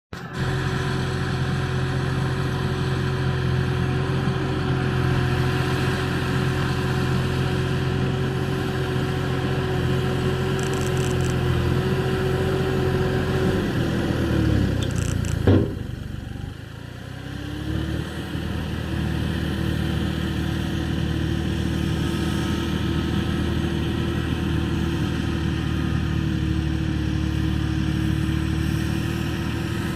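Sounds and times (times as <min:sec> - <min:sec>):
tractor engine running: 0:00.1 - 0:29.9
sharp click: 0:10.6 - 0:11.4, 0:14.8 - 0:15.8.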